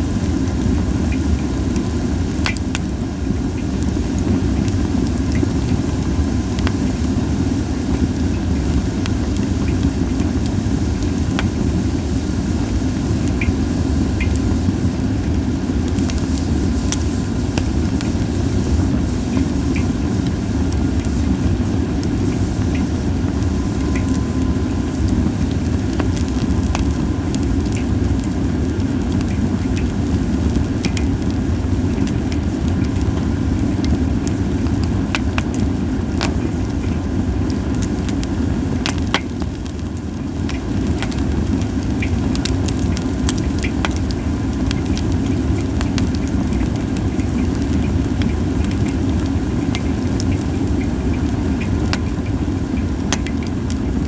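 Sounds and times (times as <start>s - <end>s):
campfire crackling and popping: 0.0s - 54.0s
low fire rumble: 0.0s - 54.0s.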